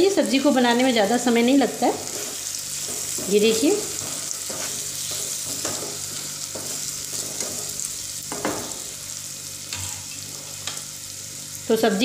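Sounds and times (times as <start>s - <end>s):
vegetables sizzling in a pan: 0.0s - 12.0s
spatula scraping: 2.0s - 8.7s.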